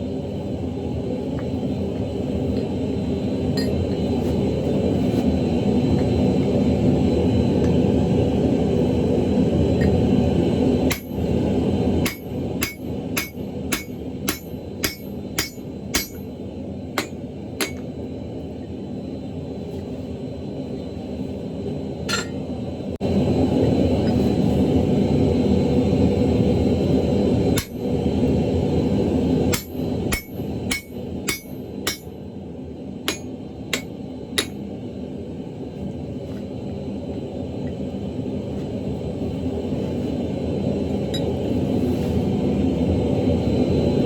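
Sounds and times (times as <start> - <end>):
hammer ringing on anvil: 10.9 - 11.2, 12.0 - 16.3, 17.0 - 17.9, 27.6 - 27.8, 29.5 - 32.1, 33.1 - 34.6.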